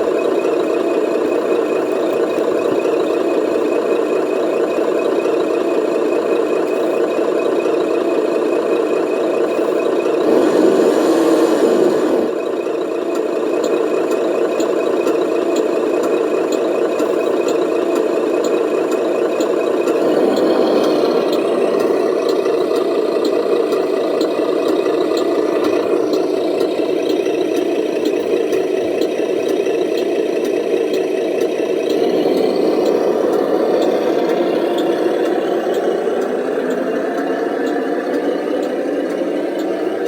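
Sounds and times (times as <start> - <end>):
model truck motor drone: 0.0 - 40.0
light regular ticking: 13.1 - 40.0.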